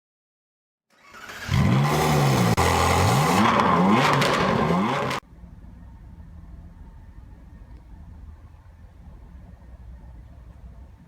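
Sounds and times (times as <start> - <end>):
motorcycle engine revving: 1.2 - 5.2.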